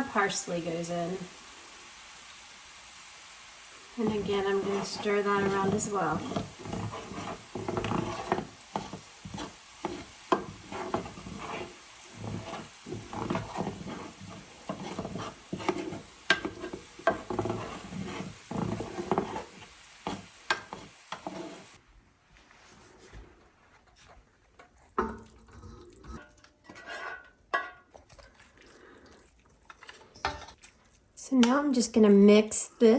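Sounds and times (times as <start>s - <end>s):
light sizzle: 0.0s - 22.5s, 23.9s - 32.9s
utensil scraping a frying pan: 3.9s - 21.8s, 26.1s - 27.9s.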